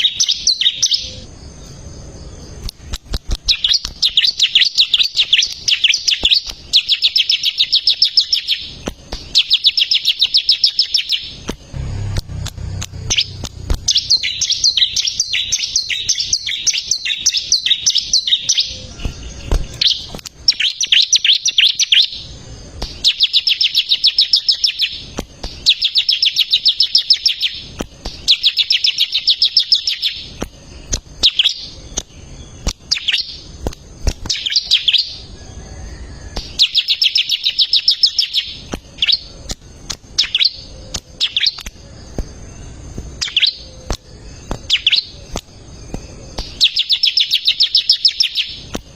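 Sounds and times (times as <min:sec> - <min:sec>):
bird singing rapid high notes: 0:00.0 - 0:01.3, 0:03.4 - 0:33.5, 0:44.4 - 0:48.7.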